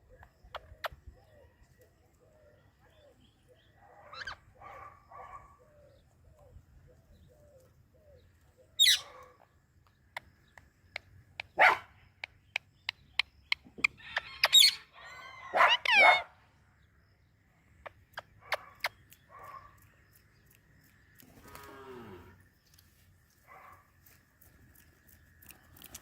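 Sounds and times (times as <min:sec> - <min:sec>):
parrot squawking: 0:08.8 - 0:09.1, 0:15.6 - 0:16.2.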